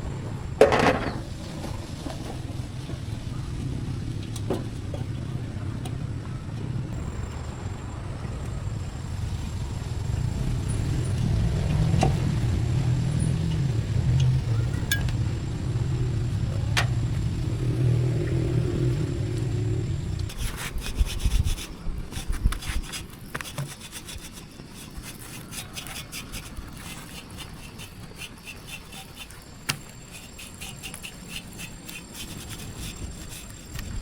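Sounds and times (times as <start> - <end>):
engine humming: 0.0 - 23.4.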